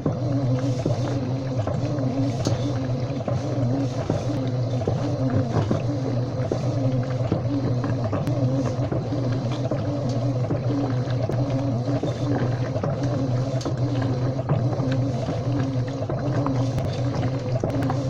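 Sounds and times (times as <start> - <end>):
washing machine motor hum: 0.0 - 18.0.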